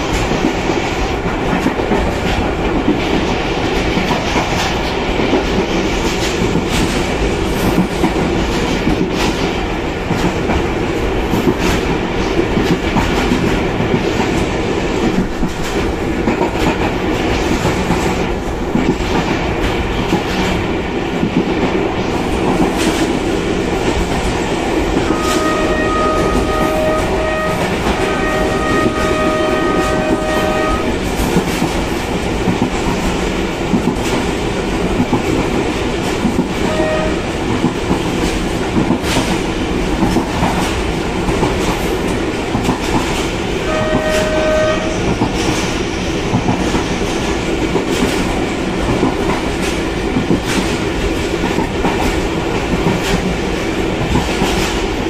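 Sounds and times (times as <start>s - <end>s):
train wheel and wind rush: 0.0s - 55.0s
locomotive horn: 25.1s - 31.0s, 36.6s - 37.3s, 43.6s - 45.0s.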